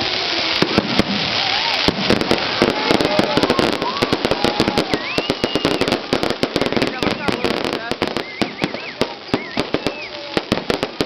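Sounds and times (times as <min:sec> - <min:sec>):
firecrackers banging: 0:00.0 - 0:11.0.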